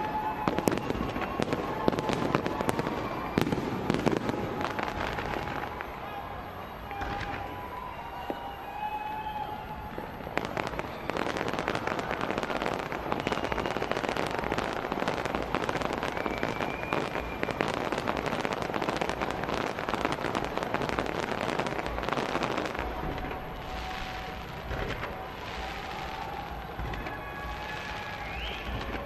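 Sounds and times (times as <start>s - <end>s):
fireworks crackling and banging: 0.0s - 29.0s.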